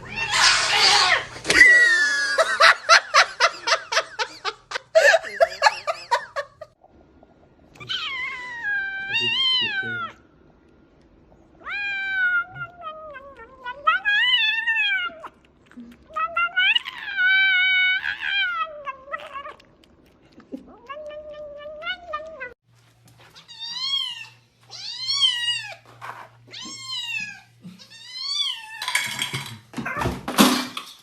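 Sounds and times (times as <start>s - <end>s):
cat meowing: 7.8s - 10.2s, 11.6s - 15.4s, 16.1s - 19.7s, 20.7s - 22.6s
cat choppy vocal sounds: 12.1s - 22.6s.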